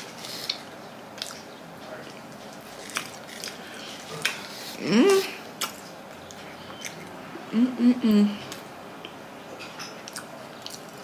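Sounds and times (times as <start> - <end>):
person chewing with wet clicks: 0.0 - 7.2, 8.5 - 11.0
person humming mm: 4.8 - 5.4, 7.5 - 8.6.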